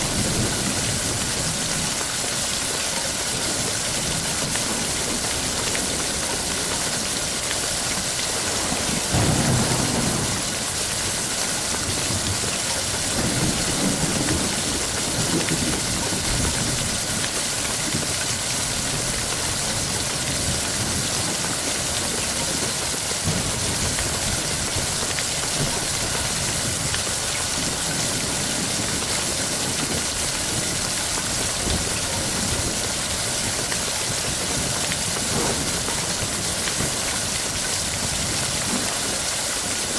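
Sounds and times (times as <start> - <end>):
heavy rain: 0.0 - 39.9
thunder rumbling: 8.2 - 14.7.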